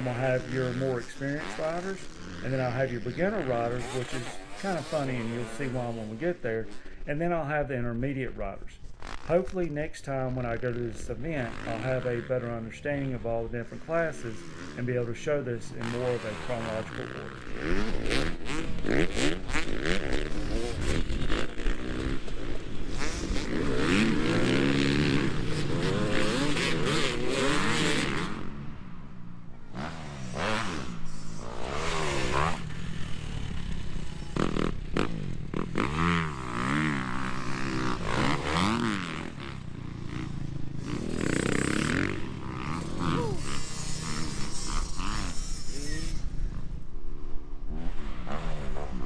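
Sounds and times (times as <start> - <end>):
dirt bike engines revving: 0.0 - 49.0.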